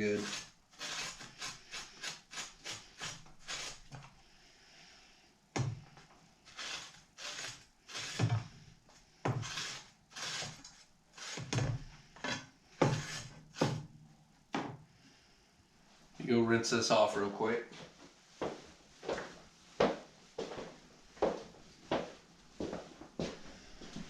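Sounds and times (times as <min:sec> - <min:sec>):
stiff brush scrubbing metal: 0:00.0 - 0:04.0, 0:06.5 - 0:08.6
sharp scrape or knock: 0:12.8 - 0:13.8.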